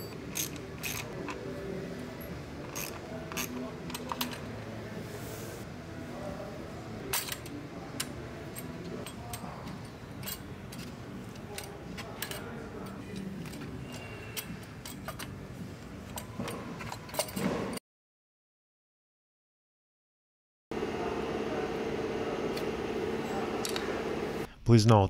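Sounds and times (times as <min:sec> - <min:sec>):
hand tools and metal parts clinking: 0:00.0 - 0:01.5, 0:07.1 - 0:15.4, 0:16.0 - 0:17.8.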